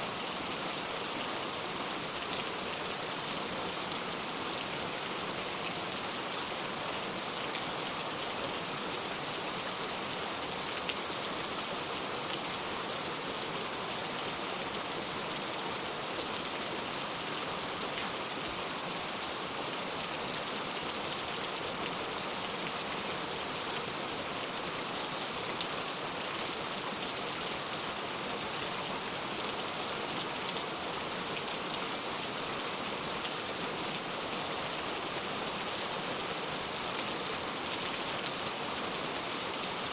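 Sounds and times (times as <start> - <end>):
rain falling on ground: 0.0 - 39.9.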